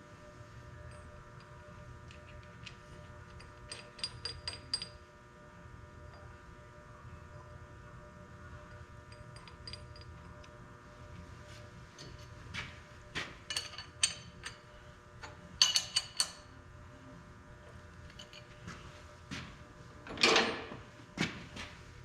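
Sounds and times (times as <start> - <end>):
low shop hum: 0.0 - 22.0
metal tools clinking and knocking: 13.5 - 14.6, 15.6 - 16.4.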